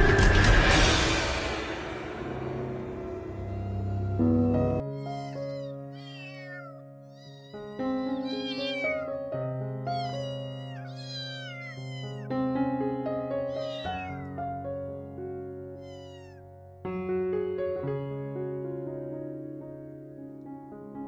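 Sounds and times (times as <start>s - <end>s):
piano music: 0.0s - 21.0s
kitten meowing: 3.3s - 9.2s, 9.8s - 12.3s, 13.4s - 14.4s, 15.8s - 16.4s.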